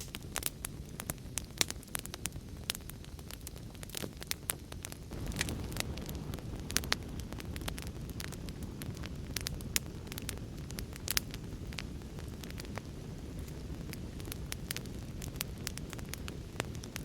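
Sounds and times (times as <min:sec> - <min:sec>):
wood fire crackling and popping: 0:00.0 - 0:17.0
low rumble of storm: 0:05.1 - 0:17.0.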